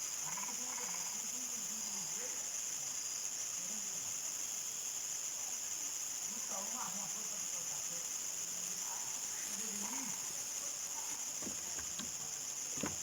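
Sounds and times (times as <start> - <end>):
crickets and insects chorus: 0.0 - 13.0
faint distant voices: 5.4 - 13.0.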